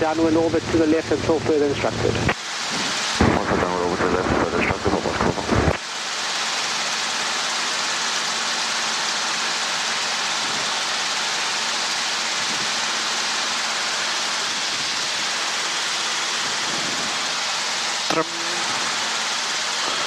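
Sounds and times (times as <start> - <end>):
headset audio hiss: 0.0 - 6.3, 13.6 - 20.0.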